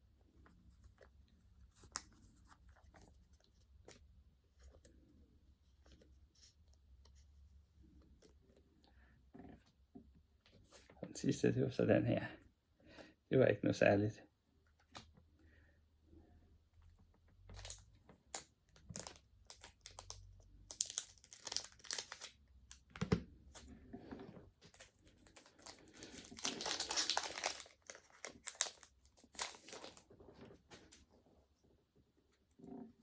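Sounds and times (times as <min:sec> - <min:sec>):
foil wrapper crinkling and tearing: 0:17.6 - 0:22.4, 0:24.7 - 0:30.1.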